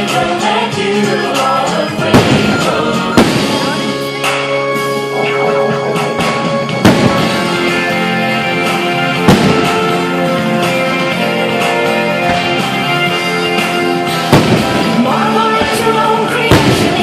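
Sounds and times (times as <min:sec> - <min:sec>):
guitar music over loudspeakers: 0:00.0 - 0:17.0
firework bangs: 0:02.0 - 0:04.0, 0:06.1 - 0:10.8, 0:13.6 - 0:17.0.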